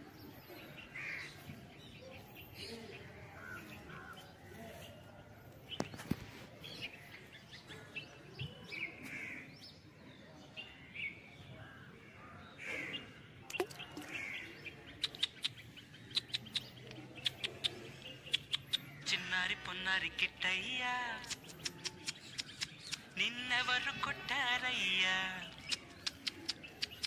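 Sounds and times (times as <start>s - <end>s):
birds chirping: 0.0s - 27.0s
rapid sharp clicks: 21.2s - 23.2s, 25.5s - 27.0s.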